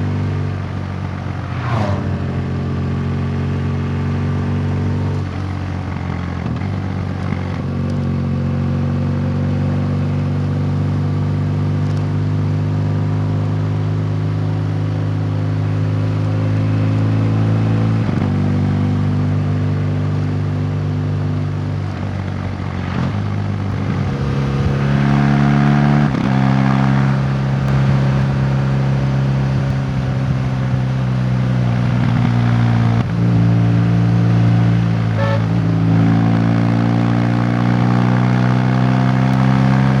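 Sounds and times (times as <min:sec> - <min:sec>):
vehicle engine changing gear: 0:21.7 - 0:40.0.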